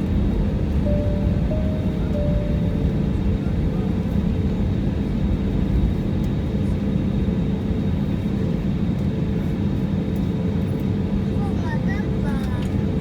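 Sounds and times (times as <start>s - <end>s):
airliner engines droning in cabin: 0.0s - 13.0s.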